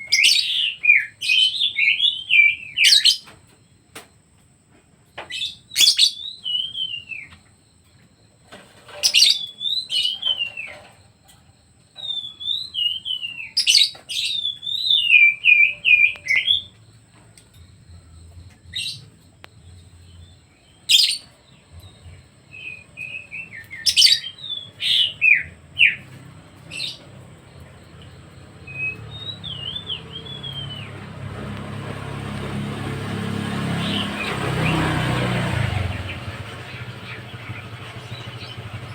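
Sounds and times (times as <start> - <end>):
songbird singing: 0.0 - 38.9
motor vehicle rumble: 15.6 - 38.9.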